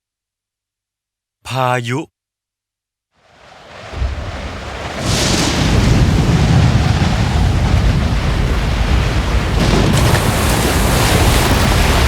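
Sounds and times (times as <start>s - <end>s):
heavy sea surging: 3.2s - 12.0s
wind: 3.2s - 12.0s
deep rumble: 4.0s - 12.0s.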